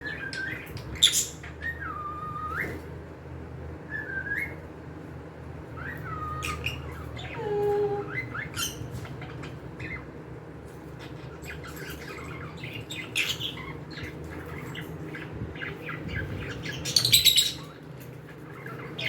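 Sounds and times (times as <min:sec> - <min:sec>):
cockatiels whistling: 0:00.0 - 0:02.9, 0:03.9 - 0:04.6, 0:05.7 - 0:08.9.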